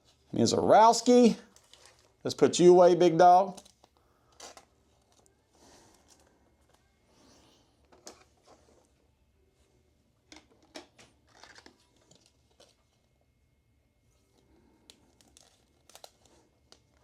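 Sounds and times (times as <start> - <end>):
trading cards rustling and clicking: 1.0 - 2.4, 3.2 - 7.0, 10.3 - 13.2, 14.2 - 17.0.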